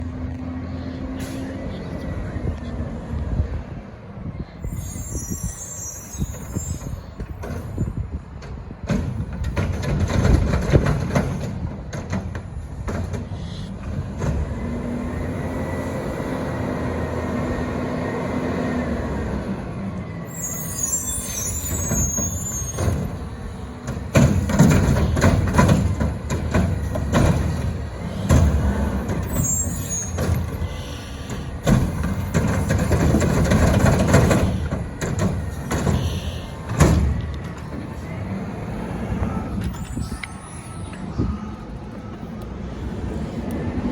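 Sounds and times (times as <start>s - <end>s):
air brakes hissing: 1.0s - 1.8s, 4.3s - 8.0s, 13.2s - 14.5s, 19.0s - 26.0s, 26.7s - 32.7s, 33.9s - 38.2s
garbage truck engine whine: 13.8s - 43.9s
loud knocks and bangs: 23.9s - 28.7s, 31.6s - 36.0s, 36.7s - 37.2s.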